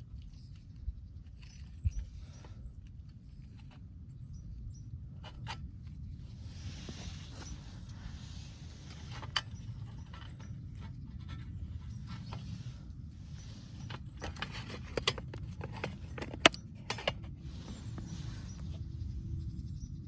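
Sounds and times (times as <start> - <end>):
low rumble: 17.4 - 20.0.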